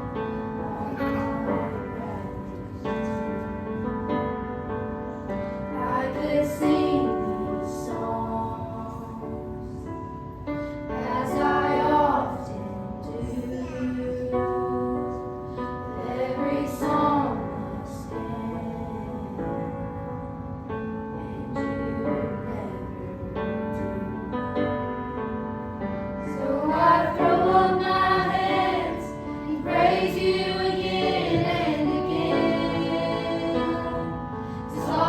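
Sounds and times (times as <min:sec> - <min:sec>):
piano accompaniment: 0:00.0 - 0:35.0
youth choir singing: 0:00.6 - 0:03.2, 0:05.8 - 0:09.3, 0:10.9 - 0:14.4, 0:15.9 - 0:19.4, 0:26.2 - 0:35.0.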